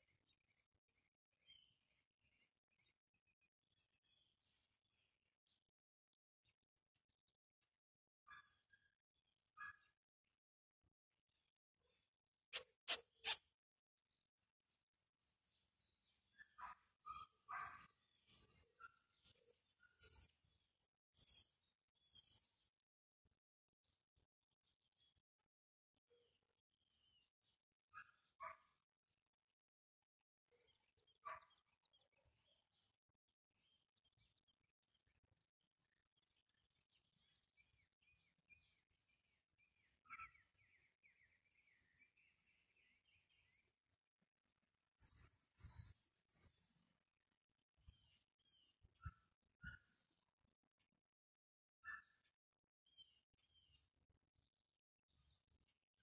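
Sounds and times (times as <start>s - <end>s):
faint bird chirps: 12.5s - 13.4s, 15.5s - 20.4s, 45.0s - 46.8s.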